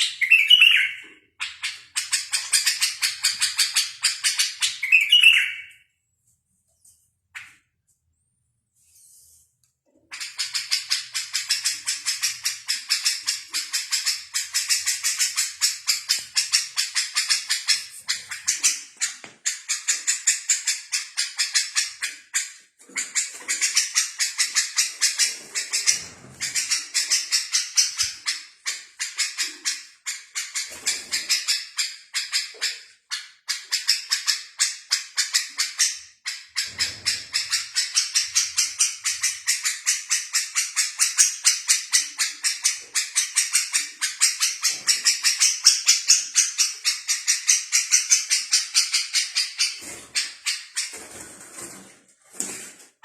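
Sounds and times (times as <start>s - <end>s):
songbird chirping: 0.0s - 5.9s.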